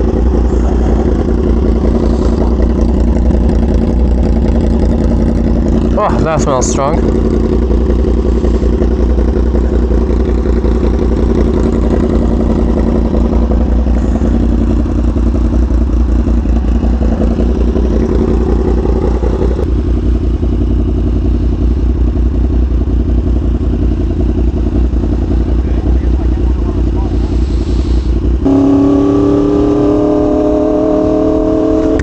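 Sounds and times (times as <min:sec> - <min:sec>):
motorcycle engine cruising: 0:00.0 - 0:32.0.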